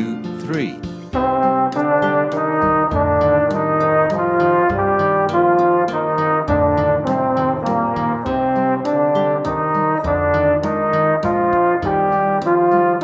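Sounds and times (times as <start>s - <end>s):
brass instrument slow melody: 0.0s - 13.0s
ticking beat: 0.0s - 13.0s.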